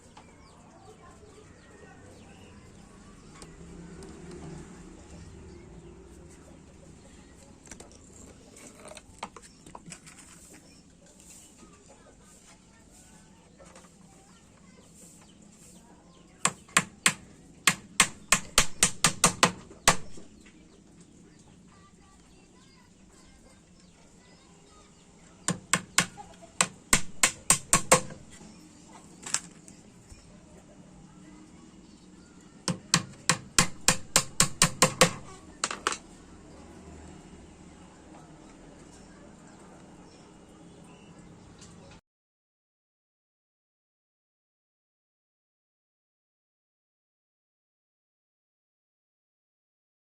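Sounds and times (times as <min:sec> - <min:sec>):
small hammer tapping nails: 0:16.5 - 0:20.2, 0:25.5 - 0:28.3, 0:32.7 - 0:36.0.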